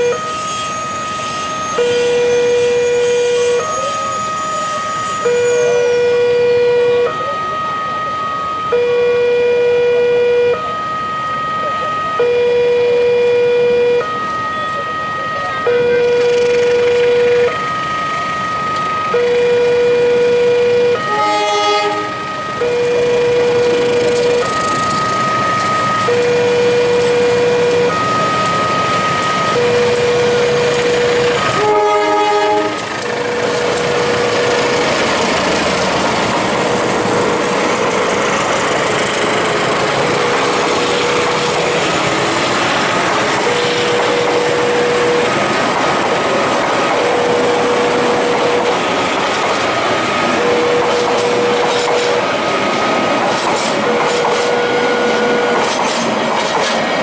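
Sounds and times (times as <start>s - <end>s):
locomotive horn: 0.0s - 7.3s, 8.7s - 10.8s, 12.2s - 14.8s, 15.4s - 17.6s, 19.1s - 24.5s, 26.0s - 28.1s, 29.5s - 34.7s, 43.4s - 45.6s, 50.3s - 52.2s, 53.8s - 56.0s
level crossing alarm: 0.0s - 57.0s
train running past: 0.0s - 57.0s
wheels clattering over rail joints: 32.5s - 54.7s, 55.4s - 57.0s.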